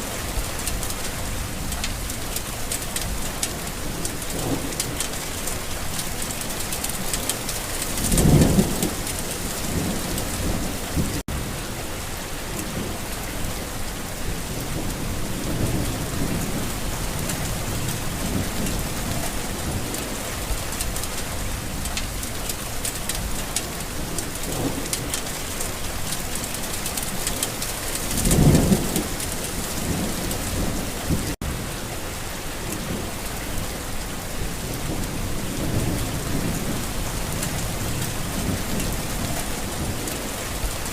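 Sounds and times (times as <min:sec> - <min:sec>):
thunder rumbling: 0:00.0 - 0:11.6, 0:23.2 - 0:31.7, 0:34.4 - 0:40.9
steady rain falling: 0:00.0 - 0:40.9.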